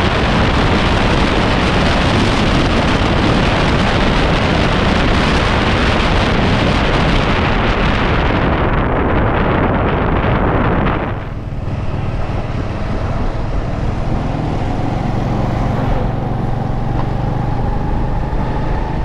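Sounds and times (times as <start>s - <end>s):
wind rushing over microphone: 0.0s - 19.0s
motorbike engine running: 10.0s - 19.0s.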